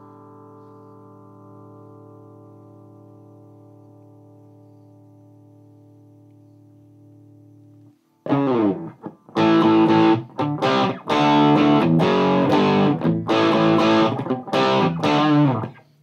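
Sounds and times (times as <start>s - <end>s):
distorted electric guitar chords: 8.2s - 16.0s.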